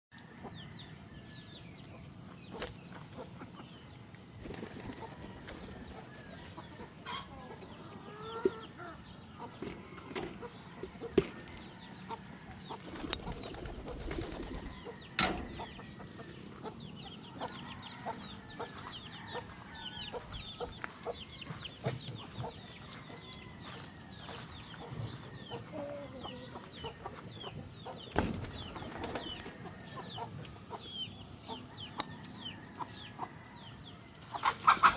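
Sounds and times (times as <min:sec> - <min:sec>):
chickens clucking: 0:01.8 - 0:34.9
wings flapping: 0:04.4 - 0:05.3, 0:12.8 - 0:14.8, 0:28.4 - 0:29.4.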